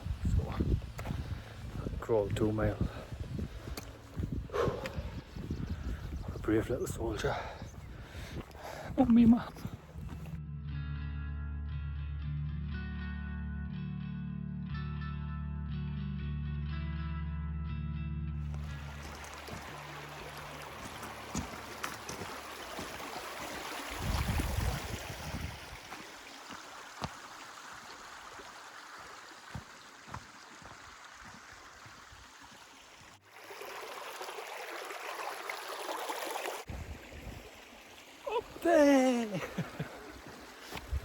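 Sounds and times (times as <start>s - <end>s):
stream water rushing: 18.5s - 41.0s.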